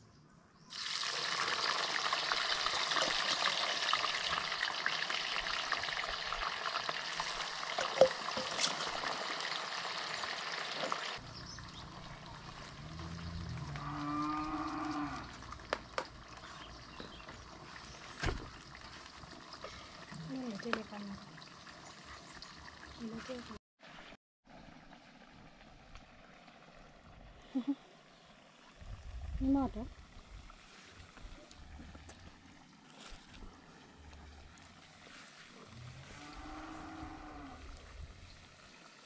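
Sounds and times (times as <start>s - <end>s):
food sizzling in hot oil: 0.7s - 12.8s
cow mooing: 12.8s - 15.4s, 35.6s - 37.8s.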